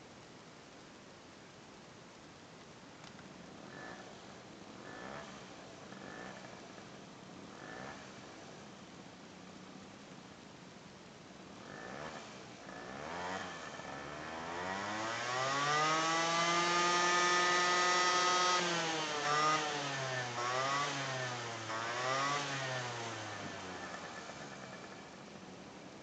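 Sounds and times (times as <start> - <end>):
scooter engine revving: 3.6 - 4.2, 4.8 - 8.4, 11.6 - 25.8.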